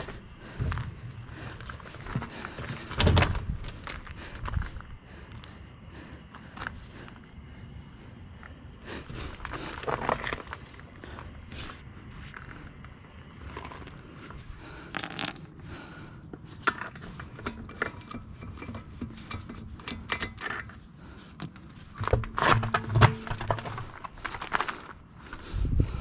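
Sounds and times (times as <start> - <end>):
metal tools clinking and scraping: 16.6 - 21.4.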